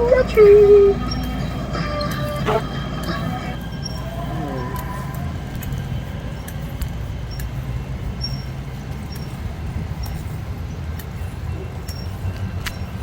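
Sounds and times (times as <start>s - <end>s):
faint high squeaks: 0.0s - 6.6s
wind and road noise: 0.0s - 13.0s.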